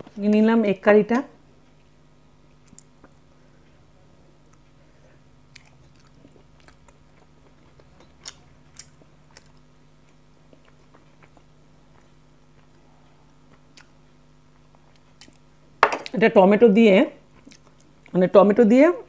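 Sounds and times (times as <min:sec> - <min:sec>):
faint steady hum: 0:00.0 - 0:19.0
biting and chewing food: 0:05.4 - 0:12.8.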